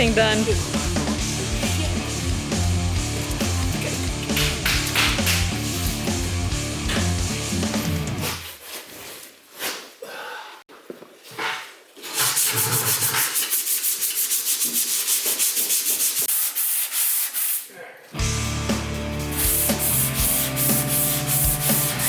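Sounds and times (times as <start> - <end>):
background music: 0.0 - 8.3, 18.2 - 22.0
sandpaper rubbing on metal panel: 1.4 - 4.4, 12.0 - 17.7, 19.3 - 22.0
scattered scrapes: 12.0 - 15.2.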